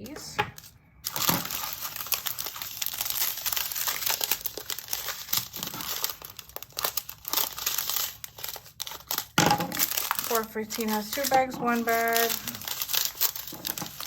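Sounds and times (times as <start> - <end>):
plastic baggies crinkling: 0.0 - 14.0.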